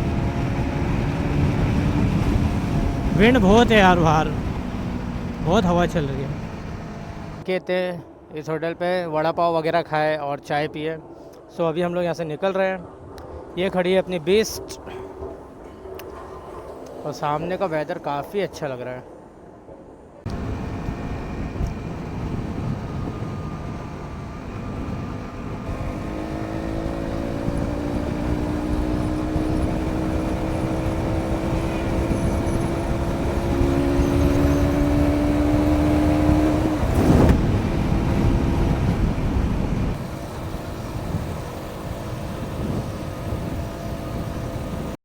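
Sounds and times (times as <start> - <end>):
wind noise on microphone: 0.0 - 5.6, 20.3 - 45.0
motorcycle engine: 0.0 - 7.4, 20.3 - 45.0.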